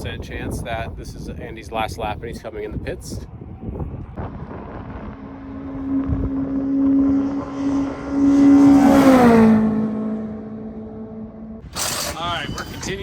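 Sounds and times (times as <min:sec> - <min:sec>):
race car passing at speed: 0:03.9 - 0:11.6.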